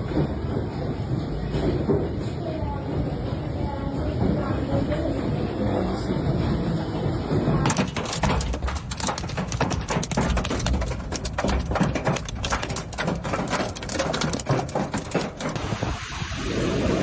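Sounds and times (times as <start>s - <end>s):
hail clattering on hard surfaces: 7.4s - 16.1s
steady rushing noise: 8.0s - 17.0s.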